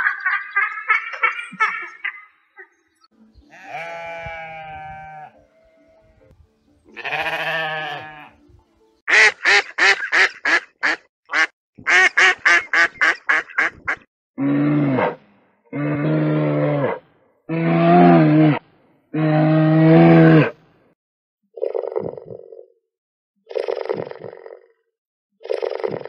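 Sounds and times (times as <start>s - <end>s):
mouflon bleating: 3.5s - 6.3s, 6.9s - 8.4s, 17.5s - 20.6s.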